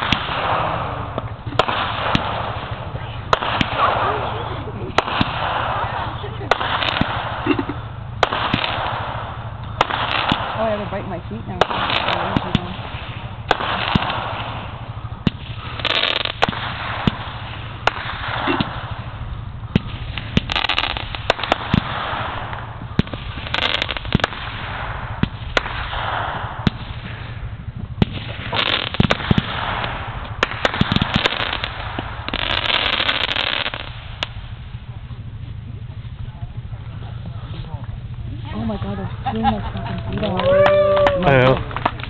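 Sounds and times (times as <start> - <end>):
fireworks bangs and pops: 0.0 - 42.0
fireworks crackling hiss: 0.0 - 42.0.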